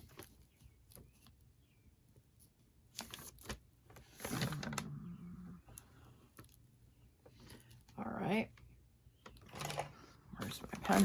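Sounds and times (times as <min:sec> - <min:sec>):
paper rustling: 0:02.9 - 0:04.9.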